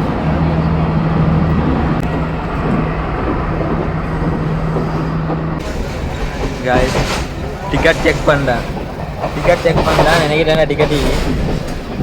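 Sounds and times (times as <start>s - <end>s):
diesel engine hum: 0.0s - 9.4s
train rumbling: 0.0s - 12.0s.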